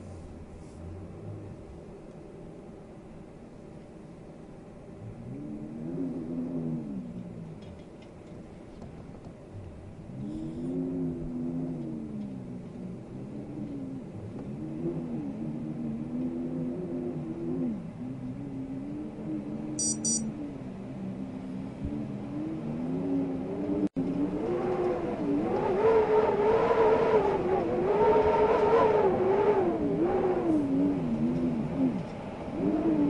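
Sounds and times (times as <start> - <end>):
wind howling: 9.5 - 33.0.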